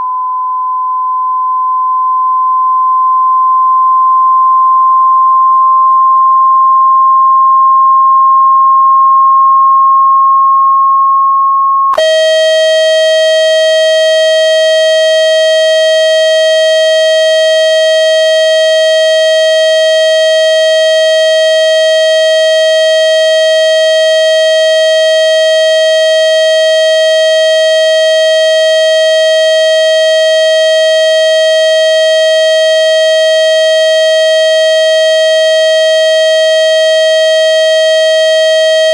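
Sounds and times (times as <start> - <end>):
loud electronic tone: 11.9 - 38.9.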